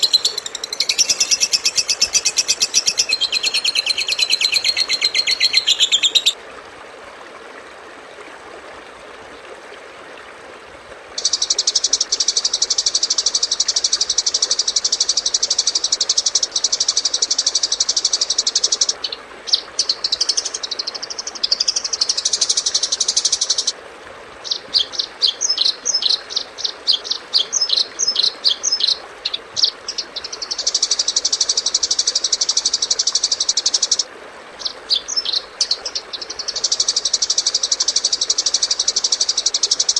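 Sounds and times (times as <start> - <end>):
buzzing bird trill: 0.0 - 6.4
high bird chirping: 0.0 - 6.4
warbling bird song: 0.0 - 6.4, 11.2 - 23.8, 24.4 - 39.9.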